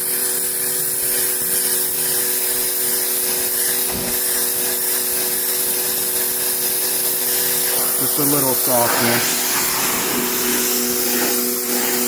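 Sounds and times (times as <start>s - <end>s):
pressure washer spray hissing: 0.0s - 12.0s
machine humming: 2.2s - 5.4s
low thump: 3.9s - 4.4s.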